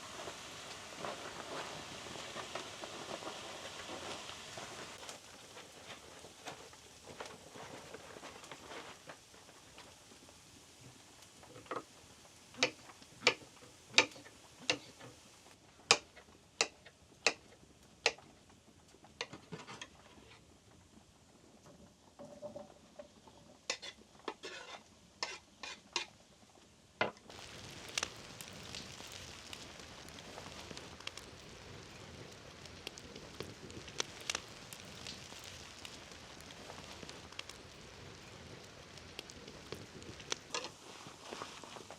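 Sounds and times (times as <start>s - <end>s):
soft patter: 27.3s - 41.9s.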